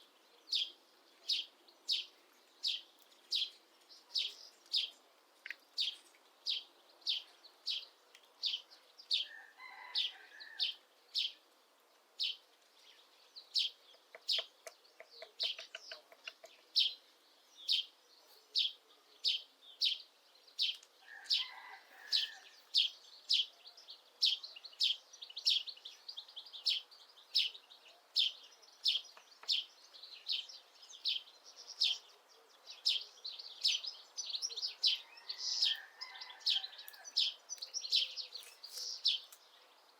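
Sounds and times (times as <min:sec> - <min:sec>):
bird chirping: 0:00.0 - 0:11.5, 0:12.2 - 0:39.9
woodpecker tapping wood: 0:13.9 - 0:16.7.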